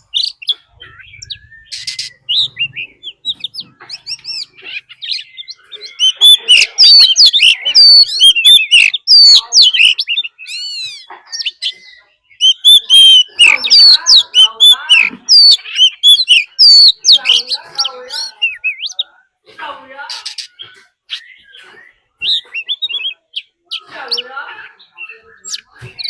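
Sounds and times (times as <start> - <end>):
bird singing varied whistles: 0.1 - 3.6, 11.9 - 17.4.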